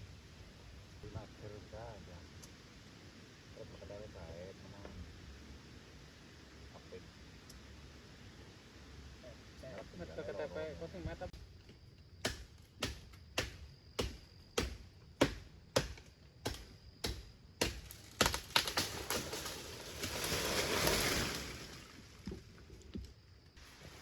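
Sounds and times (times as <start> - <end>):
tool striking wood: 12.2 - 18.4
rustling: 17.9 - 24.0.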